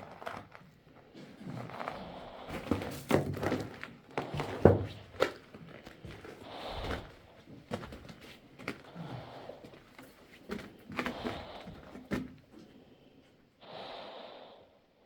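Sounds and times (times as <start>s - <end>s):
person breathing: 6.2s - 7.3s, 10.8s - 15.0s.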